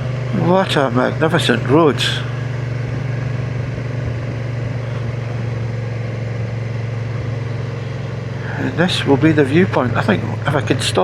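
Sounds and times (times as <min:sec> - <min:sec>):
motorcycle engine running: 0:00.0 - 0:11.0
road noise: 0:00.0 - 0:11.0.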